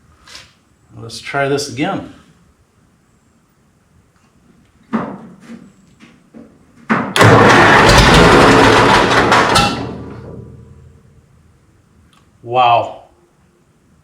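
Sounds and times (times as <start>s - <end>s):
engine knocks: 7.1s - 10.9s
tractor engine starting and running: 7.2s - 11.1s.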